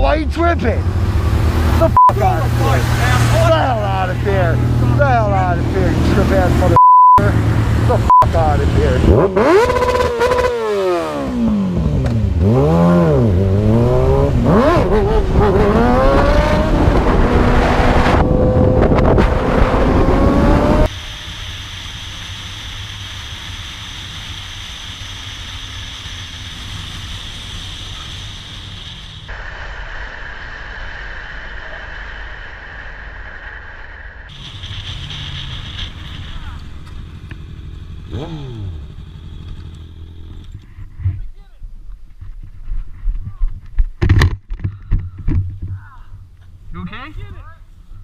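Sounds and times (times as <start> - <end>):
steady rushing noise: 0.0 - 12.4, 13.0 - 38.0
engine revving: 0.6 - 21.2, 34.2 - 40.6.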